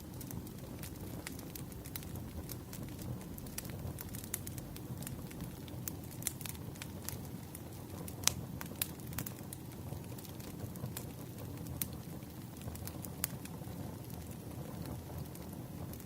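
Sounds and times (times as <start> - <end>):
campfire crackling and popping: 0.0 - 16.0
low rumble: 0.4 - 5.9.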